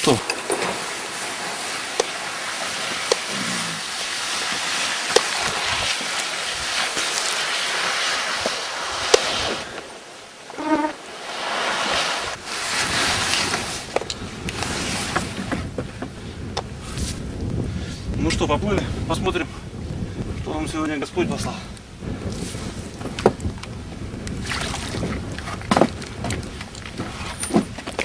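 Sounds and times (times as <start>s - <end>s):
water splashing and sloshing: 0.0s - 16.4s, 22.3s - 28.0s.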